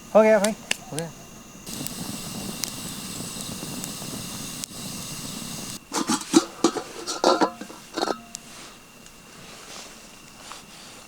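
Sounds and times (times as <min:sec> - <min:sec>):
metal cookware clattering: 0:05.9 - 0:08.4.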